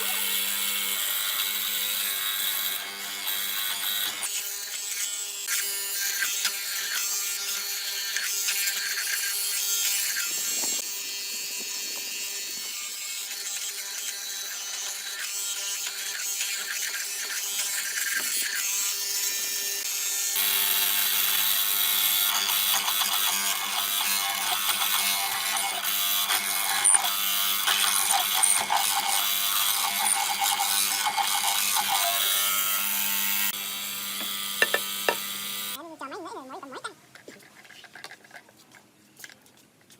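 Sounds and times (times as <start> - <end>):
woodworking tool rattling and scraping: 34.2 - 35.3, 37.1 - 39.9.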